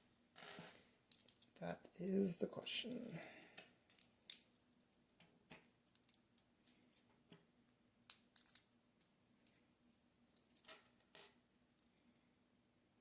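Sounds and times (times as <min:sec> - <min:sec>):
plastic toy bricks clicking: 0:01.1 - 0:01.6, 0:08.1 - 0:08.7.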